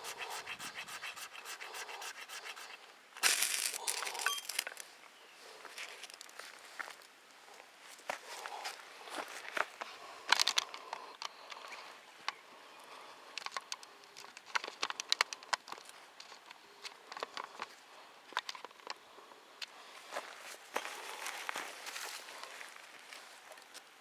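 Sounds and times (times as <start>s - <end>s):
footsteps crunching on dry leaves: 1.2s - 4.8s.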